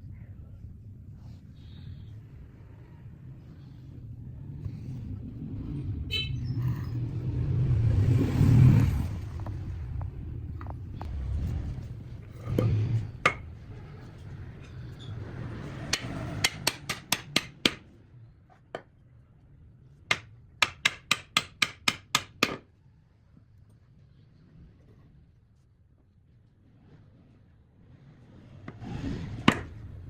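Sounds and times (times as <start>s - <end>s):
hammer blows: 15.8s - 17.8s.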